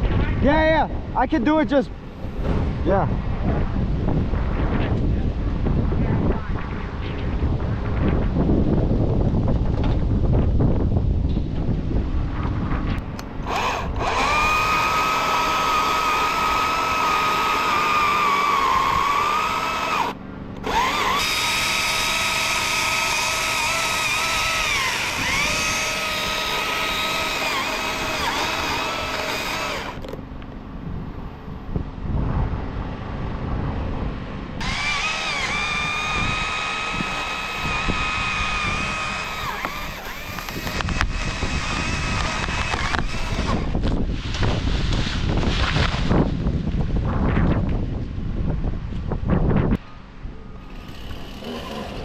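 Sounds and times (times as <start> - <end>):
steady low hum: 0.0 - 52.0
chainsaw motor whine: 13.1 - 30.2, 34.6 - 44.0, 50.5 - 52.0.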